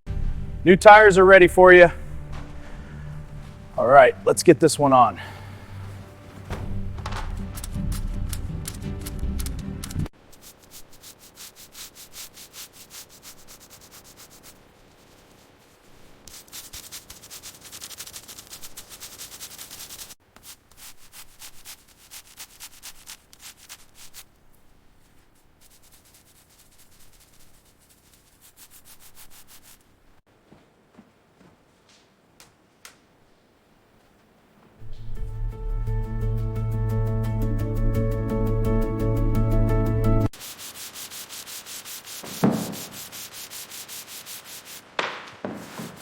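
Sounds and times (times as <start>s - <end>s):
rhythmic rubbing strokes: 0.1s - 24.3s, 25.0s - 29.9s, 40.2s - 45.0s.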